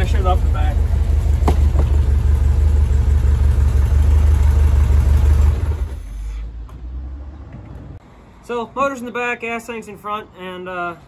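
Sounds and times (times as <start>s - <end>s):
car engine idling and stopping: 0.0s - 6.4s.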